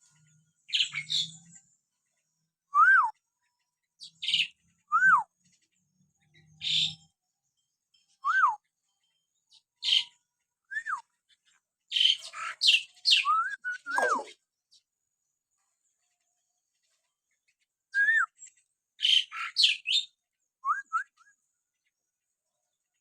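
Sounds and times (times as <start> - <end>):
myna rasping calls: 13.9 - 14.4.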